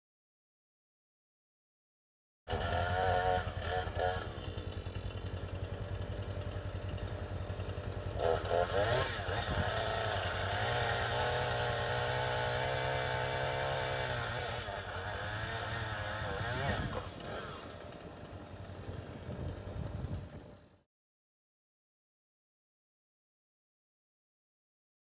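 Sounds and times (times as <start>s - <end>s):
chainsaw engine revving: 2.5s - 20.8s.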